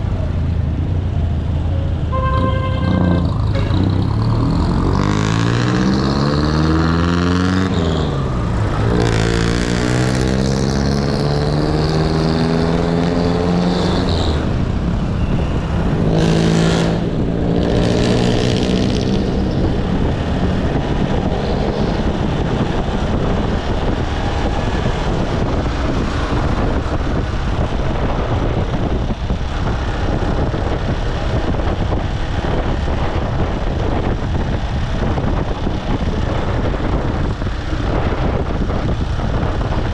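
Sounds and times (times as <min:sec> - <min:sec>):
motorcycle engine accelerating: 0:00.0 - 0:39.9
wind and road noise: 0:00.0 - 0:39.9.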